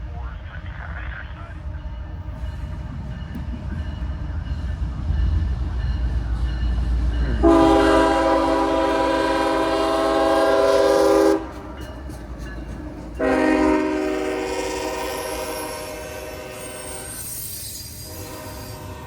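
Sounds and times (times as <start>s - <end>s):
low rumble of train: 0.0s - 19.0s
locomotive air horn blasts: 7.4s - 11.8s, 13.2s - 17.2s, 18.1s - 19.0s.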